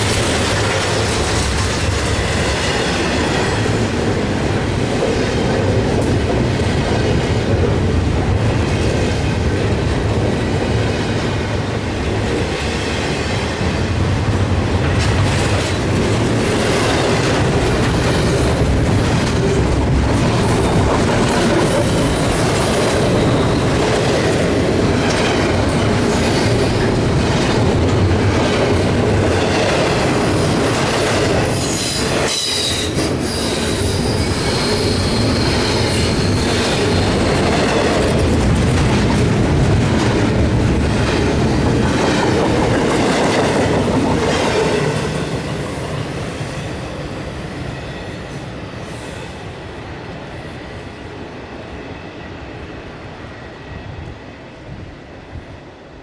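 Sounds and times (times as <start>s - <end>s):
high wheel squeal: 31.5s - 37.5s.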